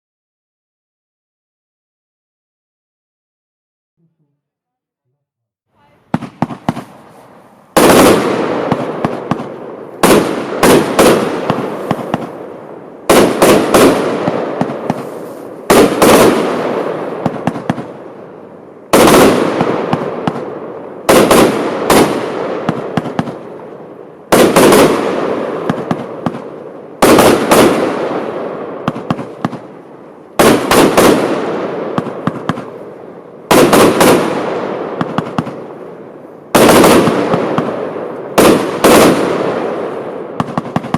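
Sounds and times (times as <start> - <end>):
fireworks banging: 5.8 - 40.9.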